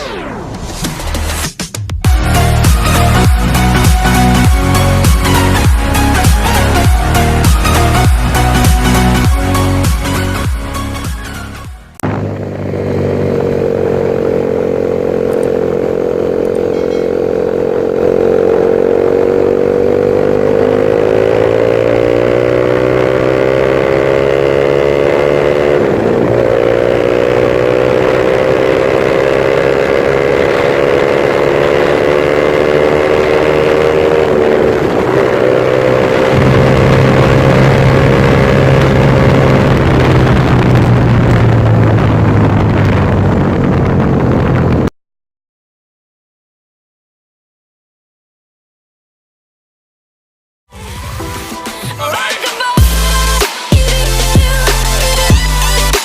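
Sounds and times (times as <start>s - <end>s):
motorcycle engine pulling: 12.0s - 41.2s.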